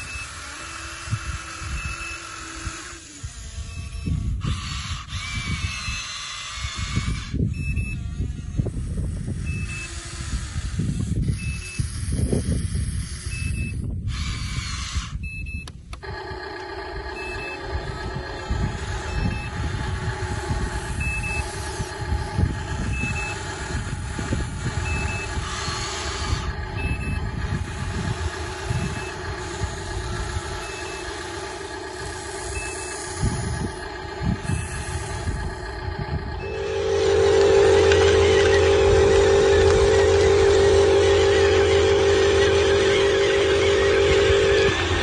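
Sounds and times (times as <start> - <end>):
toy reversing beeper: 0.0 - 0.6, 1.6 - 2.7, 3.6 - 4.2, 7.5 - 8.1, 9.4 - 10.0, 11.2 - 11.9, 13.2 - 45.0
electric motor hum: 0.0 - 15.2, 15.8 - 45.0
low rumbling: 15.2 - 45.0.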